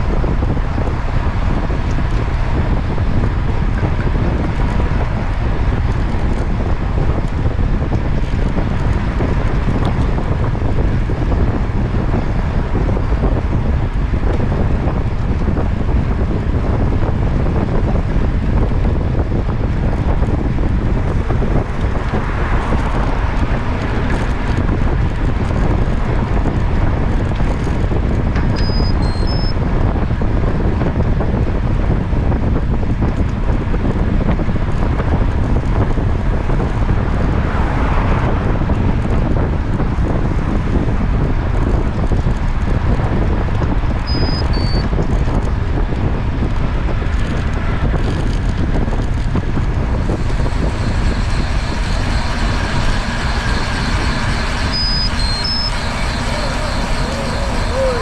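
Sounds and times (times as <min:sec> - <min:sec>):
rushing road noise: 0:00.0 - 0:58.0
wind buffeting microphone: 0:00.0 - 0:58.0
short high beeps: 0:28.6 - 0:29.6, 0:44.1 - 0:44.8, 0:54.7 - 0:58.0.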